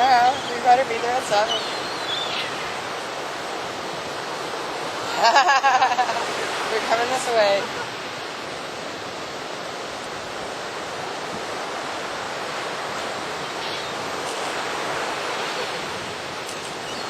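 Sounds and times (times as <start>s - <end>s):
ocean surf breaking on beach: 0.0s - 17.0s.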